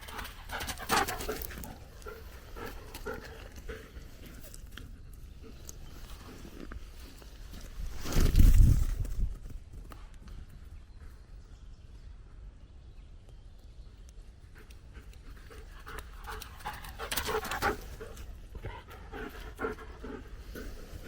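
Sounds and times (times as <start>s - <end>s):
dog panting: 0.0s - 5.8s, 14.5s - 21.0s.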